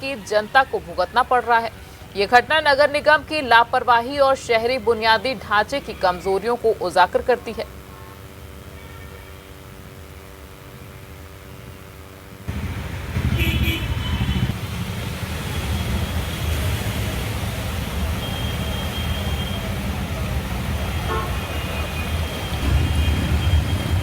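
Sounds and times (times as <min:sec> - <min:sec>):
vehicle engines running: 0:00.0 - 0:07.8, 0:12.5 - 0:24.0
car horns honking: 0:12.5 - 0:24.0.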